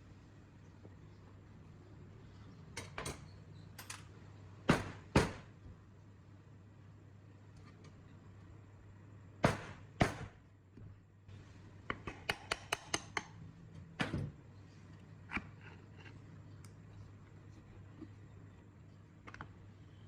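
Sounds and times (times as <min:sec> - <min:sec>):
low steady hum: 0:00.0 - 0:20.0
sharp knocks: 0:04.7 - 0:05.4, 0:09.4 - 0:10.4.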